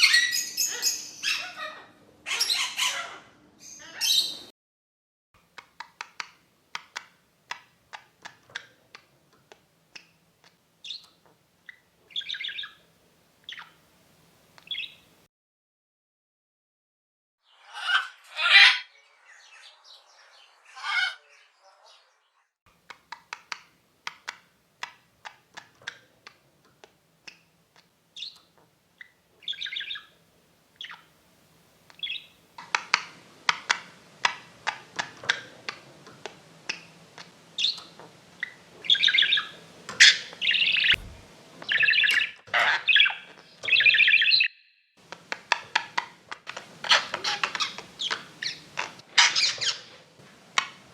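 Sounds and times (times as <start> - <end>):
parrots squawking: 0.0 - 4.5, 17.6 - 19.8, 20.6 - 22.0, 38.4 - 43.2, 46.6 - 50.0
parrots chirping and clicking: 5.4 - 12.8, 22.8 - 30.1, 31.9 - 50.9.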